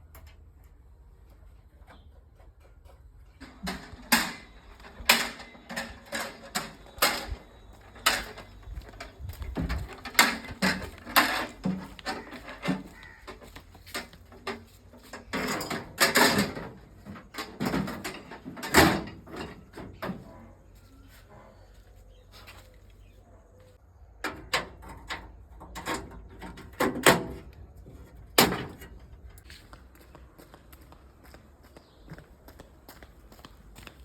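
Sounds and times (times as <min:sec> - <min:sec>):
hand tools knocking and clattering: 0:02.5 - 0:20.4, 0:24.2 - 0:29.4.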